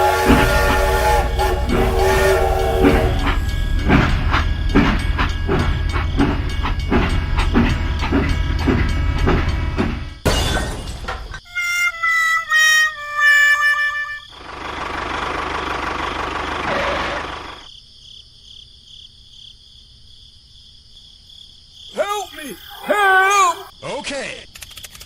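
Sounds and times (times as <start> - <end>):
held music melody: 0.0 - 10.2, 11.4 - 14.3
train chugging: 0.0 - 17.7.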